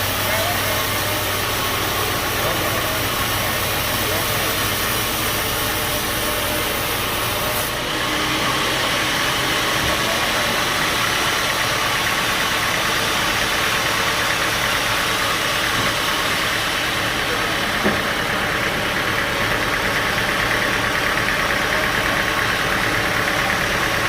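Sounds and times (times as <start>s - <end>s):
band sawmill drone: 0.0s - 24.0s.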